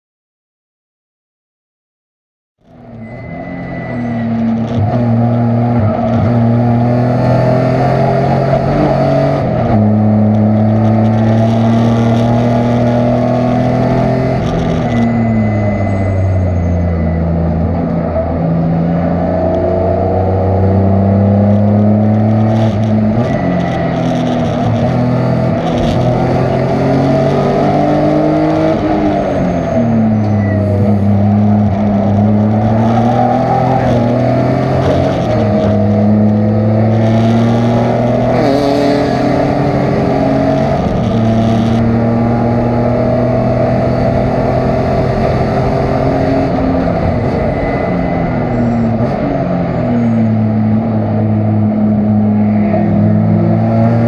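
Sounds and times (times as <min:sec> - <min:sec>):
race car engine accelerating: 0:02.6 - 0:54.0.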